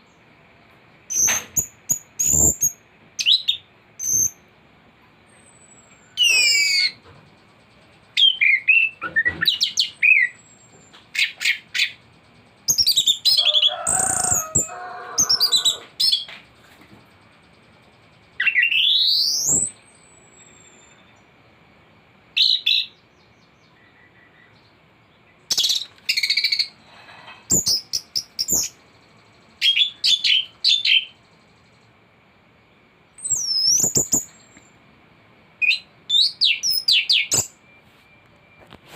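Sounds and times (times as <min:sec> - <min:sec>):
faint steady high tone: 0:19.6 - 0:21.4, 0:37.4 - 0:38.9.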